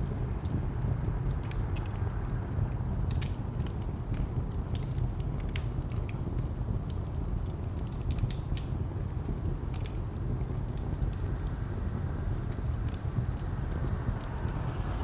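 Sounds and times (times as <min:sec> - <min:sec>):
wood fire crackling: 0:00.0 - 0:15.0
distant traffic rumble: 0:09.2 - 0:15.0.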